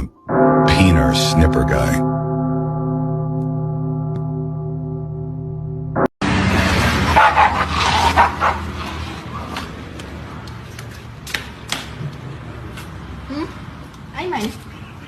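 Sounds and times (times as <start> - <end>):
dog barking: 7.1 - 8.7.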